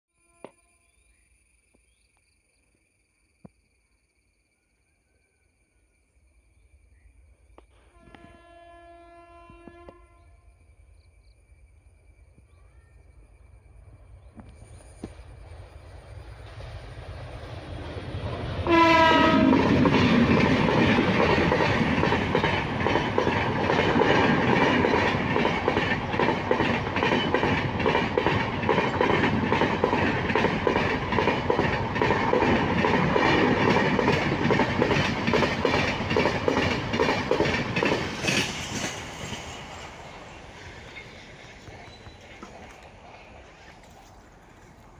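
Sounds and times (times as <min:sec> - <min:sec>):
train horn blast: 0:07.8 - 0:10.5, 0:18.6 - 0:19.8
train wheel clatter over rail joints: 0:19.2 - 0:43.1.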